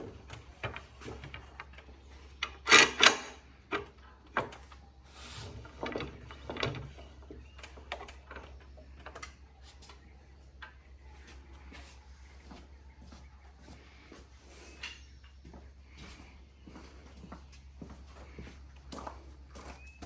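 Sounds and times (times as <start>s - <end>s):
clamps knocking and clanking: 0.1s - 4.6s
steady low hum: 3.4s - 20.0s.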